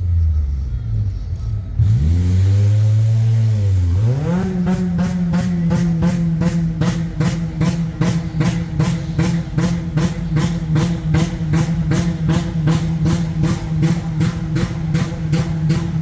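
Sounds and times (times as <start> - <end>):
rough car engine knocking: 4.0 - 16.0.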